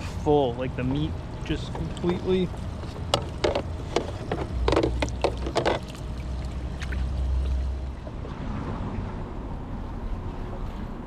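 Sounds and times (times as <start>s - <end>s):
low steady rumble: 0.0s - 11.0s
splashy handling sounds: 0.8s - 9.0s.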